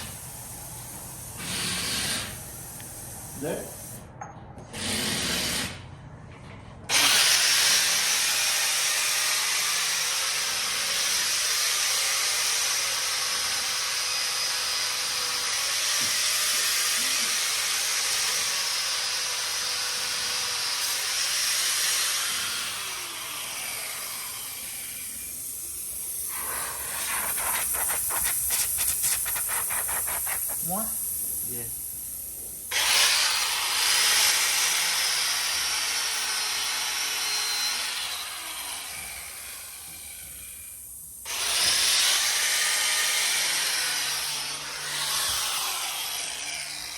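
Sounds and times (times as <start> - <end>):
air hissing out of a tire: 0.0 - 4.1, 25.1 - 32.7.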